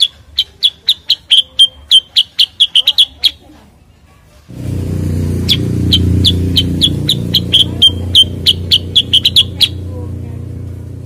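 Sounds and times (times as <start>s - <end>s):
bird calling sharp high notes: 0.0s - 3.4s, 5.4s - 9.9s.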